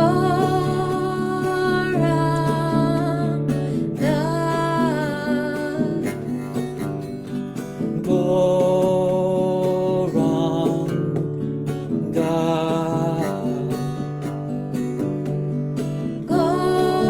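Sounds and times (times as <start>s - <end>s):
devotional chanting: 0.0s - 5.9s, 16.2s - 17.0s.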